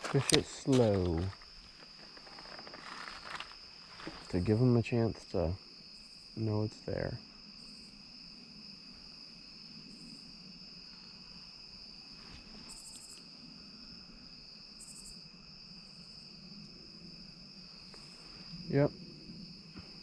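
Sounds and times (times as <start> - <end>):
insect chorus trilling: 0.0 - 20.0.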